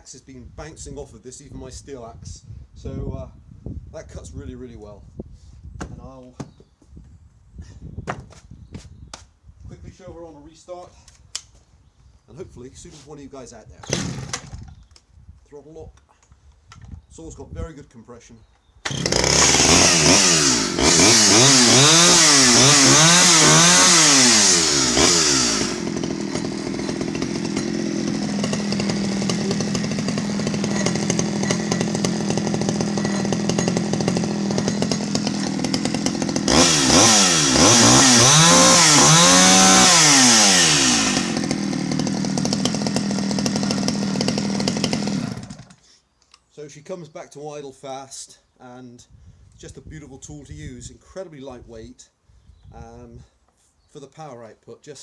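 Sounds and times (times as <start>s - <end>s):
chainsaw revving and idling: 13.8s - 14.7s, 18.8s - 45.8s.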